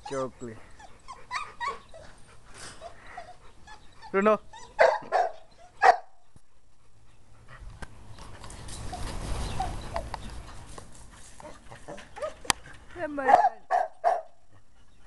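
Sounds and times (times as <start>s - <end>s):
dog barking: 4.8s - 6.1s, 13.3s - 14.3s.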